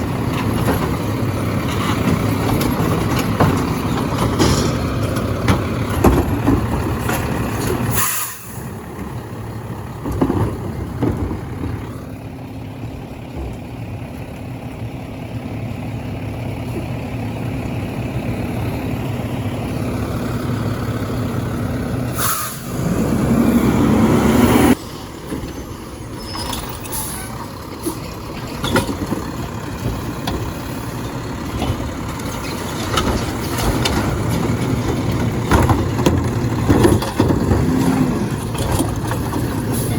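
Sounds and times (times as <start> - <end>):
diesel engine running: 0.0 - 39.9
loud air hiss: 7.9 - 8.7, 22.1 - 22.8.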